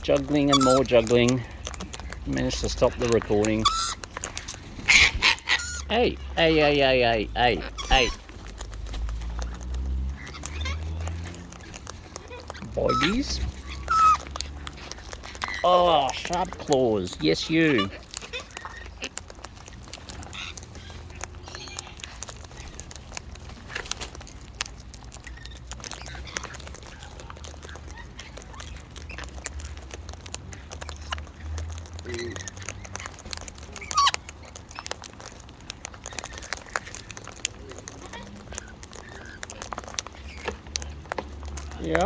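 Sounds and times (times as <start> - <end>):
parrot beaks clicking and scratching: 0.0 - 42.0
parrot chirps: 0.3 - 0.9, 3.0 - 6.4, 7.6 - 8.4, 9.5 - 11.5, 12.2 - 15.7, 30.8 - 31.5, 33.7 - 35.0.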